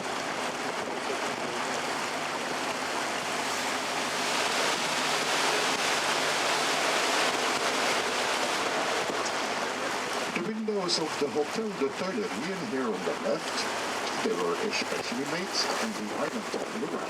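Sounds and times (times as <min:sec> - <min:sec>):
water and wind rushing: 0:00.0 - 0:17.0.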